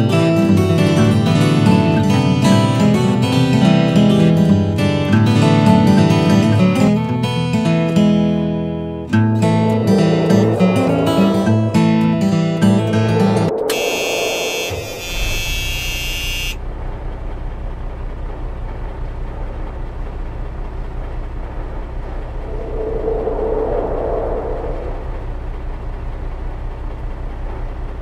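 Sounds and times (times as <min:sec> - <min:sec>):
low rumble: 0:09.0 - 0:15.8, 0:16.7 - 0:28.0
high ringing music: 0:09.2 - 0:16.6.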